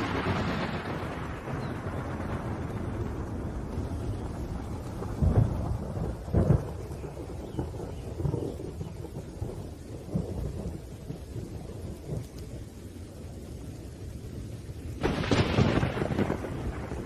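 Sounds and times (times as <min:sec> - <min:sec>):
loud thunderclap: 0:00.0 - 0:12.7, 0:14.4 - 0:17.0
low thunder rumbling: 0:00.0 - 0:17.0
rain: 0:00.0 - 0:17.0.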